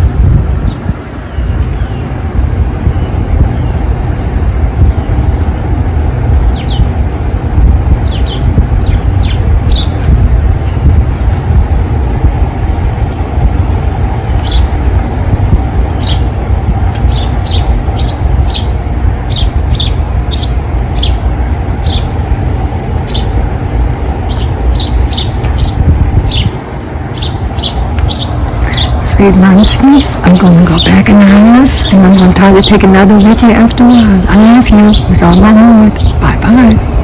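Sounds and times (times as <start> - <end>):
songbirds chirping: 0.0 - 7.1, 8.0 - 37.0
loud steady low rumble: 0.0 - 37.0.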